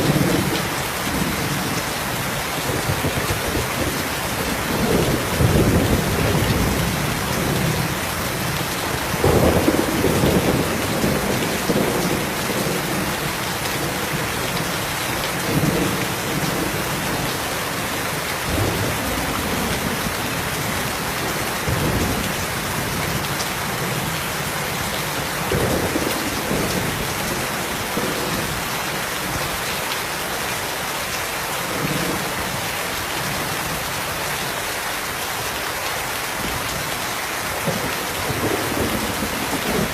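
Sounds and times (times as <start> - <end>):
heavy rain falling: 0.0 - 39.9
distant thunder rumbling: 2.7 - 17.8, 37.6 - 39.9.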